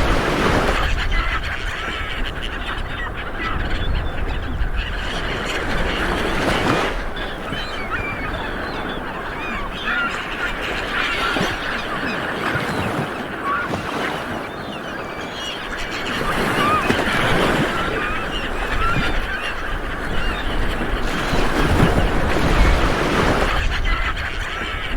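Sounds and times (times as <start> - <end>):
surf washing onto beach: 0.0 - 1.3
birds chirping: 0.0 - 24.9.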